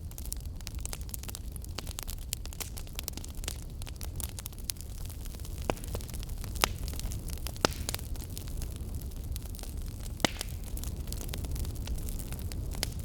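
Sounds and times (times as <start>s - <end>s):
fire crackling and popping: 0.0s - 13.0s
fire low rumble: 0.0s - 13.0s.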